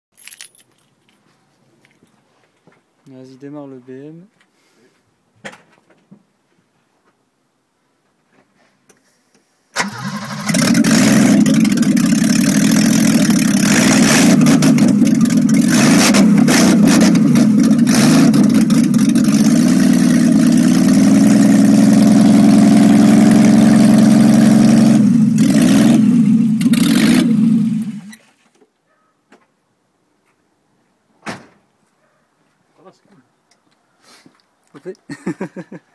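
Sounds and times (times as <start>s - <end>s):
engine cranking: 9.8s - 21.2s
loud car engine running: 9.8s - 28.1s.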